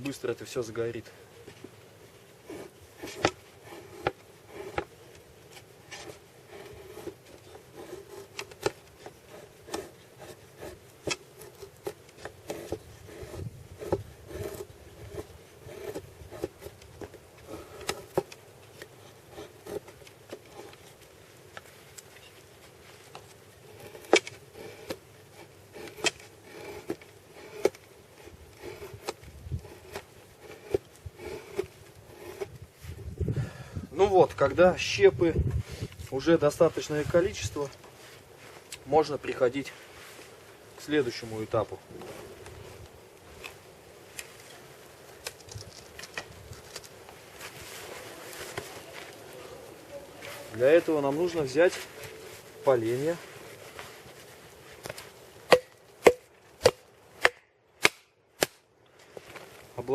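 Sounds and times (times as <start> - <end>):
knife scraping wood: 1.6 - 33.1
knife splitting wood: 2.4 - 33.0, 54.0 - 59.4
blade striking wooden board: 55.5 - 58.6.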